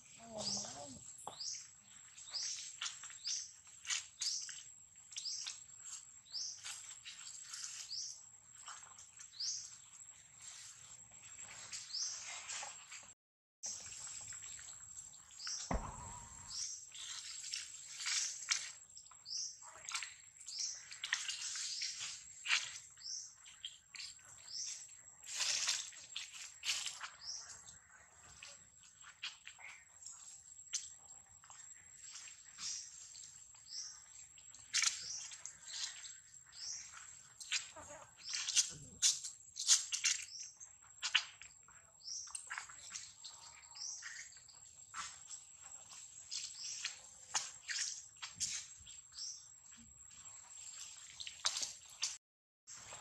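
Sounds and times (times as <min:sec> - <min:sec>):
bird chirping: 0:13.6 - 0:18.2.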